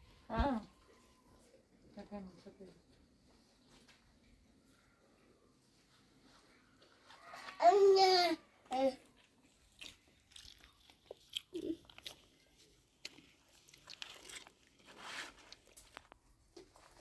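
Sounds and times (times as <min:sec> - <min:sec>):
crunching and clicking: 0:09.0 - 0:17.0
rustling: 0:12.0 - 0:17.0.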